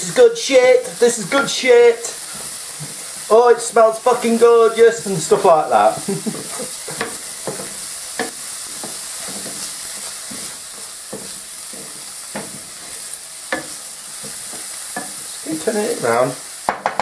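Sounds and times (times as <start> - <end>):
onion sizzling in frying pan: 0.0 - 17.0
utensil scraping against pan: 6.2 - 15.8.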